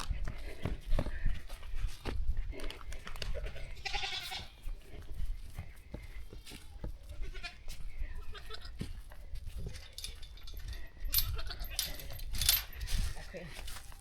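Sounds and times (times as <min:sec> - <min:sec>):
goat bleating: 0:03.3 - 0:04.7, 0:07.0 - 0:08.9, 0:11.3 - 0:11.8.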